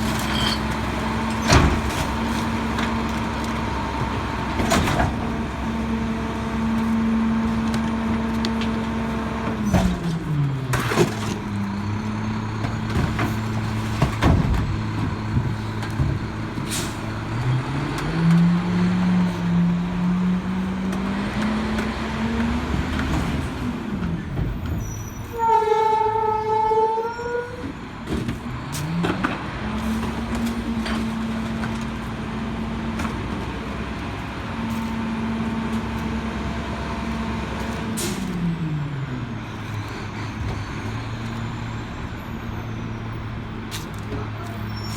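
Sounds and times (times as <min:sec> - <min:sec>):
knocks and bangs of compacting: 0:00.0 - 0:05.6, 0:12.6 - 0:16.7
garbage truck diesel engine: 0:00.0 - 0:44.9.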